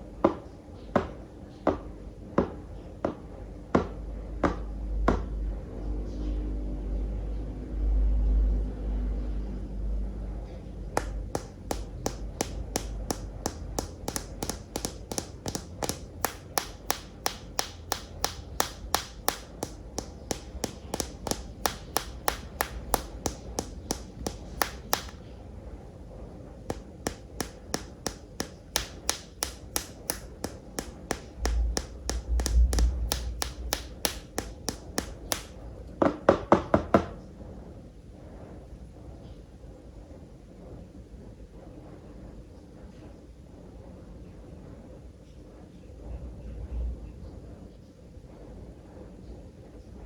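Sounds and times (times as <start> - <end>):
tapping on plastic toys: 11.0 - 25.3, 26.7 - 37.1.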